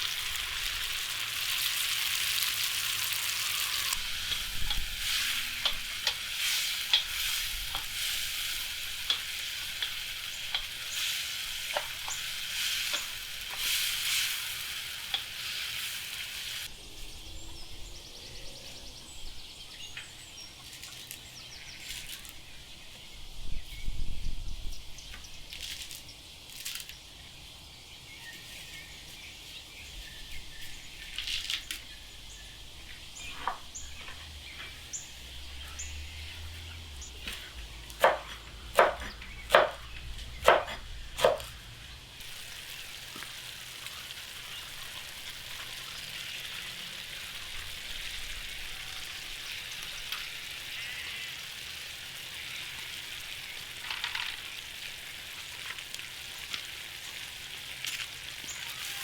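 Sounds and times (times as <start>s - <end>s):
food sizzling in a pot: 0.0s - 16.8s, 40.6s - 59.0s
birds chirping: 0.0s - 24.0s, 24.7s - 55.1s.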